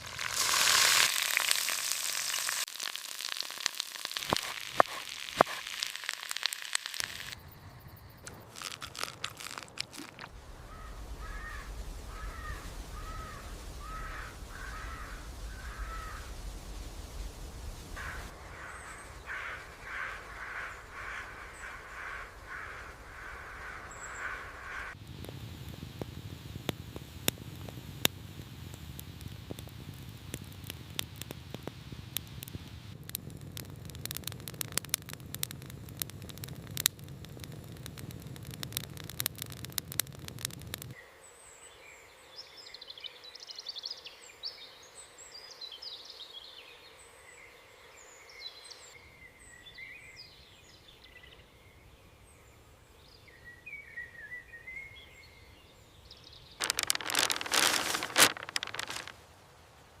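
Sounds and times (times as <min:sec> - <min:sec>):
crackling and popping: 0:00.0 - 0:07.4, 0:08.2 - 0:24.2, 0:24.9 - 0:41.0, 0:56.6 - 0:59.2.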